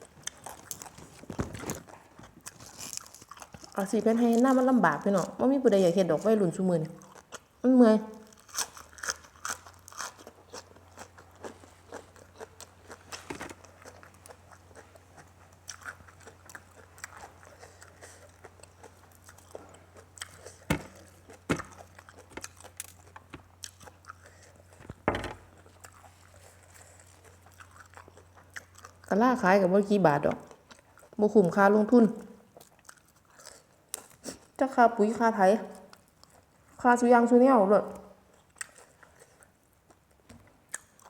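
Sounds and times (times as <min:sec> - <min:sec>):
person chewing food: 0:00.0 - 0:03.8, 0:08.2 - 0:29.1, 0:30.5 - 0:31.2, 0:32.2 - 0:34.6, 0:35.7 - 0:36.8, 0:38.2 - 0:41.0.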